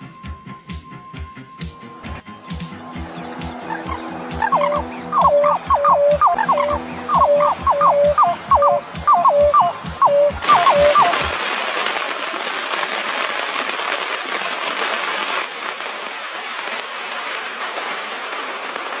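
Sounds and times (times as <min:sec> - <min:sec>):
steady hiss: 0:00.0 - 0:19.0
music with two-note figure over beat: 0:02.1 - 0:11.3.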